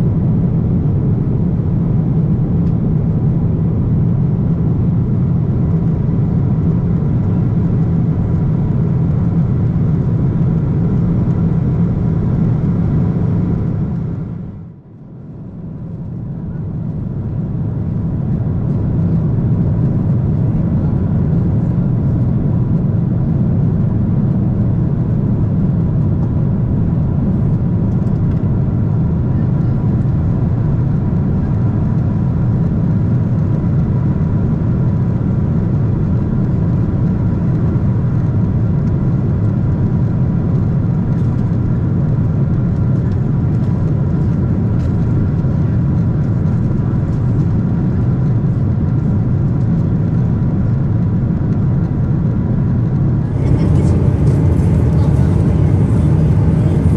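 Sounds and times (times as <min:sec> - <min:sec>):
airplane cabin rumble: 0:00.0 - 0:56.9
faint steady whine: 0:52.9 - 0:56.9.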